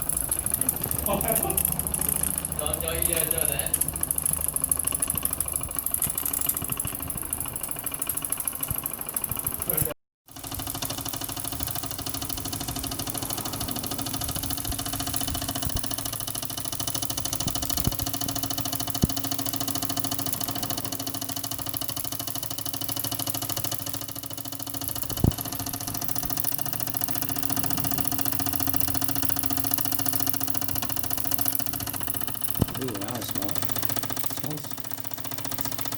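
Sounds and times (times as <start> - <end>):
sharp clicks: 0.0 - 9.9, 24.5 - 35.9
toy steam engine chuffing: 0.0 - 35.9.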